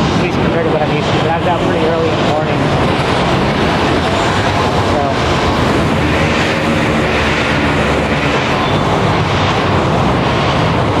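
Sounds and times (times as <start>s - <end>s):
busy city traffic rumble: 0.0s - 11.0s.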